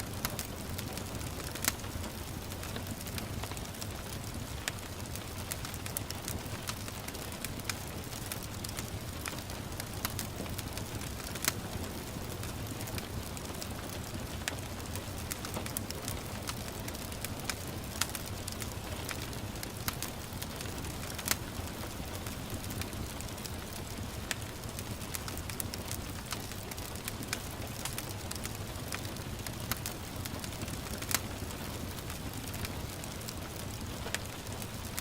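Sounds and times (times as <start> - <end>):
gentle rain hissing: 0.0 - 35.0
wood fire crackling: 0.0 - 35.0.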